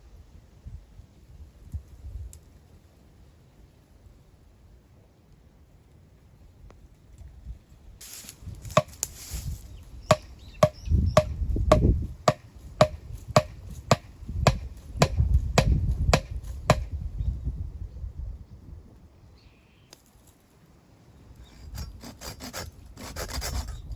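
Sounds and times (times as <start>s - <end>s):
wood chopping blows with ring: 8.7s - 9.1s, 10.1s - 17.0s.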